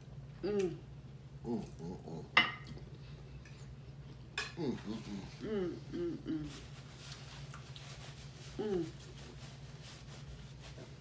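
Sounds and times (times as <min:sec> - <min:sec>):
steady low hum: 0:00.0 - 0:11.0
person humming while eating: 0:00.4 - 0:02.9, 0:04.4 - 0:06.8, 0:08.4 - 0:09.3.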